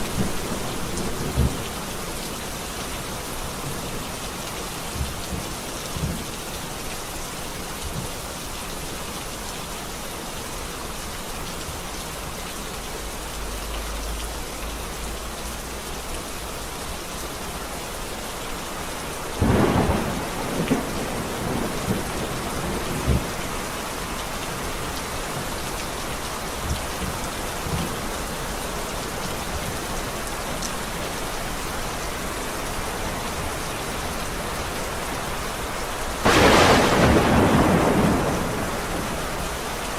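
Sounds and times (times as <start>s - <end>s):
thunder rumbling: 0.0s - 1.9s, 19.4s - 23.7s, 36.2s - 39.8s
heavy rain: 0.0s - 39.9s
loud thunderclap: 19.4s - 23.4s, 36.2s - 39.4s.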